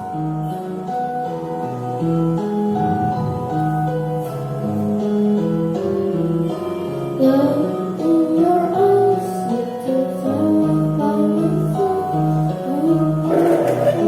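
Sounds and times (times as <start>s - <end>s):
child singing: 7.2s - 13.6s
guitar accompaniment: 13.2s - 14.0s.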